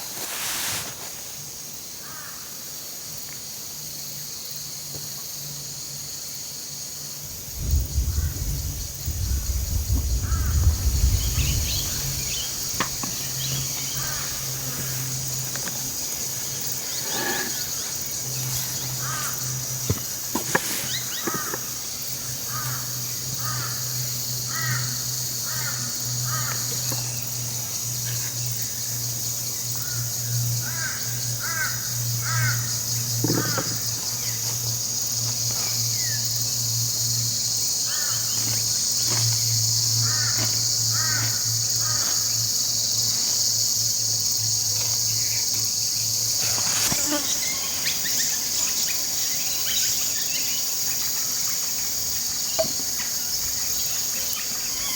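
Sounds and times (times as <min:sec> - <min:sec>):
high-pitched insect buzz: 0:03.9 - 0:54.9
bird calling: 0:10.0 - 0:15.8.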